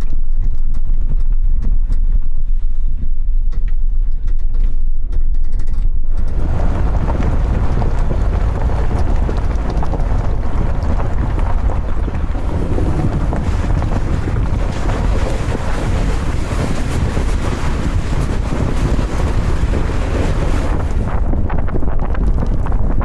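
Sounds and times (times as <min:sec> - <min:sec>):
low rumble: 0:06.0 - 0:23.0
wind buffeting microphone: 0:06.1 - 0:23.0.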